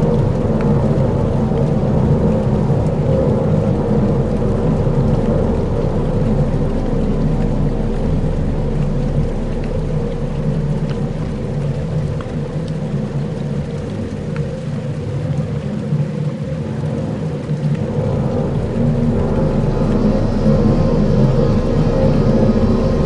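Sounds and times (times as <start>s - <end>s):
deep rumble: 0.0s - 15.6s, 16.7s - 23.0s.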